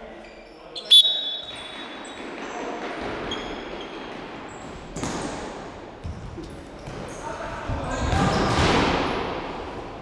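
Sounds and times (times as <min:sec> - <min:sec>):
players moving and calling: 0:00.2 - 0:04.7.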